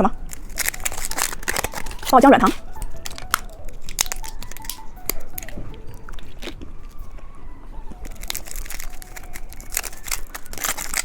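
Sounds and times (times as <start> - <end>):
chewing gummy candy: 0.0 - 11.0.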